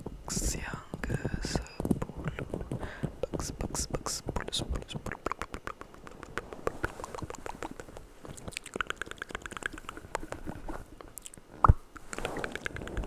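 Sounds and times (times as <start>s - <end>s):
wet mouth clicks and smacks: 3.3s - 13.0s.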